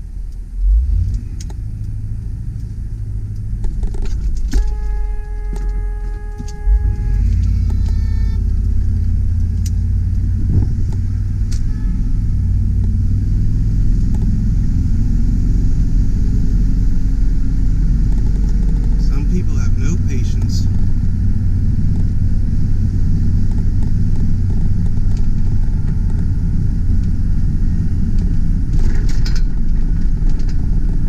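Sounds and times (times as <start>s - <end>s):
truck engine and road rumble: 0.0s - 31.0s
brief higher tone: 4.6s - 8.6s
steady pitched tone: 4.6s - 13.1s.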